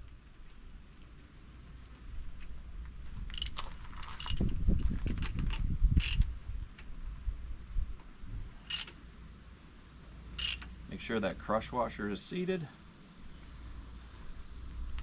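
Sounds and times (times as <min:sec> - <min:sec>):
socket ratchet clicking: 0:03.3 - 0:04.5, 0:06.0 - 0:06.3, 0:08.7 - 0:09.0, 0:10.4 - 0:10.7
metallic clinks of tool: 0:10.4 - 0:10.7.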